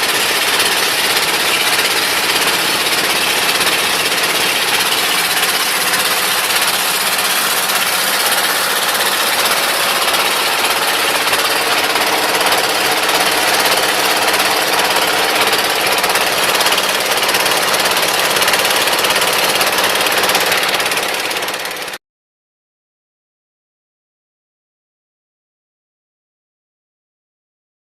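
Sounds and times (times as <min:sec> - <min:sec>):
small boat engine knocking: 0:00.0 - 0:22.0.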